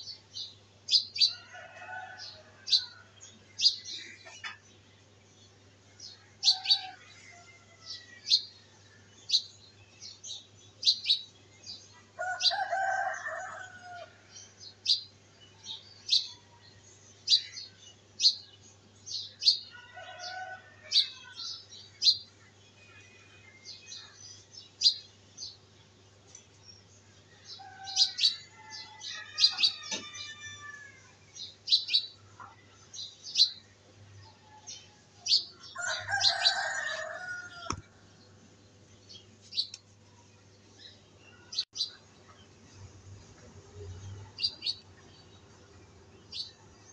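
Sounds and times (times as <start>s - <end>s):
birds chirping: 31.3s - 39.8s.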